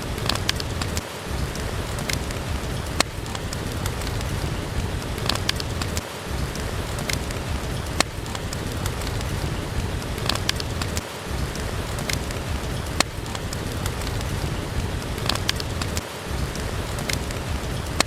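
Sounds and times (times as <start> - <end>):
steady rain: 0.0 - 18.0
wood fire crackling and popping: 0.0 - 18.0.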